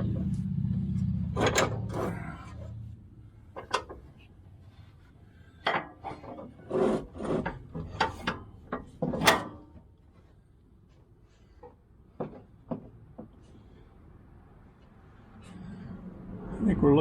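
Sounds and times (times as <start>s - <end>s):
metal parts clunking and scraping: 1.3s - 13.6s.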